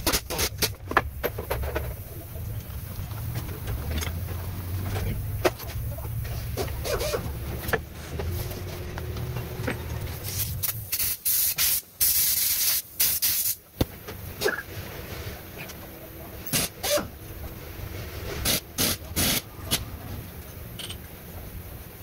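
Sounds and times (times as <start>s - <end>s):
low steady hum: 0.0s - 10.9s, 13.6s - 22.0s
bursts of loud hissing spray: 10.2s - 13.7s, 18.4s - 19.8s.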